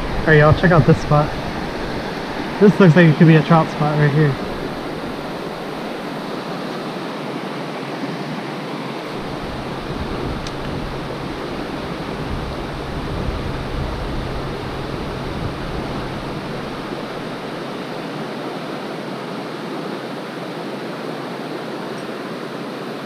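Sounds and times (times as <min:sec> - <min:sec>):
low rumble: 0:00.0 - 0:06.2, 0:09.1 - 0:17.9
water running over rocks: 0:00.0 - 0:06.9.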